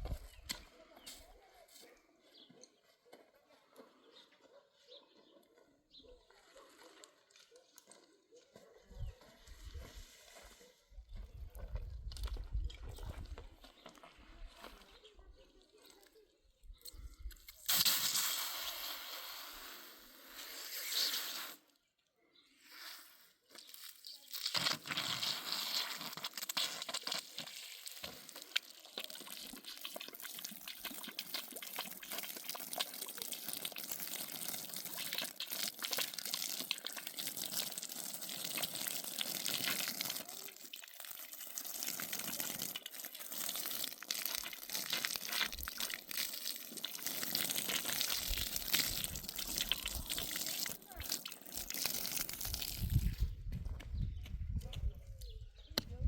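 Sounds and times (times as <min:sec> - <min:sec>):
water running and splashing: 0:24.1 - 0:53.2.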